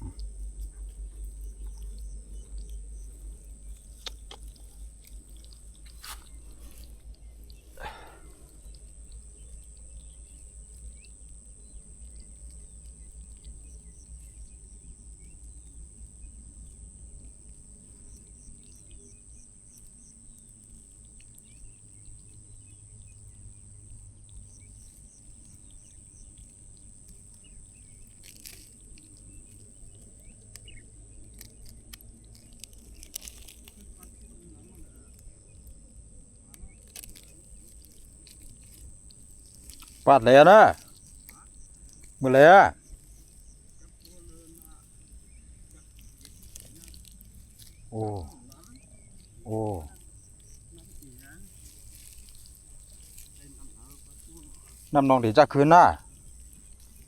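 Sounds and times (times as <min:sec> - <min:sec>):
quick chirps: 0:01.3 - 0:09.5
sharp clicks: 0:03.9 - 0:05.6.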